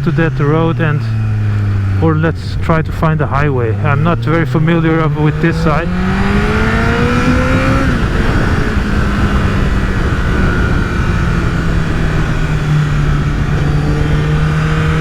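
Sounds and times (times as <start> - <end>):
motorcycle engine cruising: 0.0 - 15.0
wind rush over microphone: 3.7 - 15.0.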